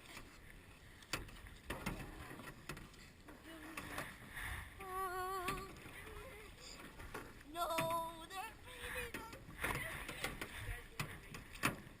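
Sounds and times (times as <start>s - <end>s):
canoe paddles dipping and knocking: 0.0s - 12.0s.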